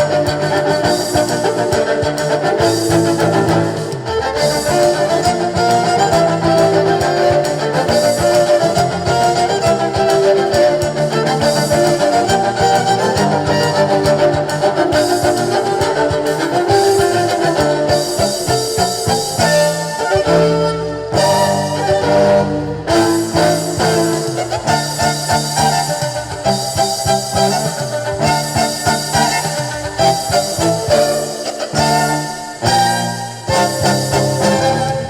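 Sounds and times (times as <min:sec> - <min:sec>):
live band playing instrumental: 0:00.0 - 0:35.0.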